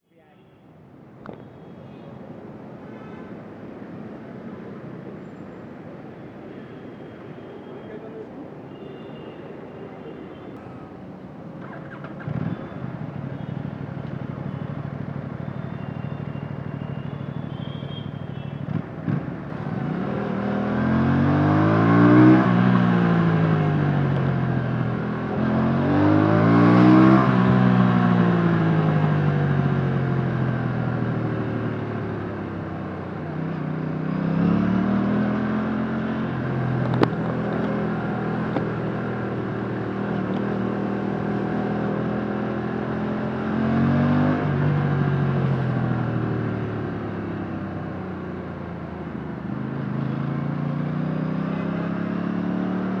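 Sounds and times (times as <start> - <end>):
motorcycle engine revving: 18.7 - 31.7, 33.4 - 47.6, 49.5 - 53.0.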